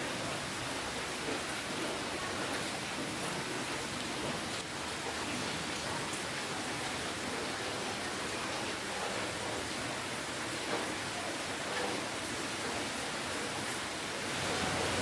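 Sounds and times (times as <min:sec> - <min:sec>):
rain hissing: 0:14.1 - 0:15.0.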